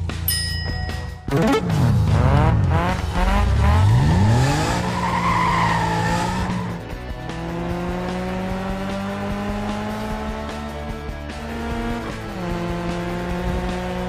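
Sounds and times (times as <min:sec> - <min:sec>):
background music: 0:00.0 - 0:14.0
tires squealing: 0:01.5 - 0:07.0.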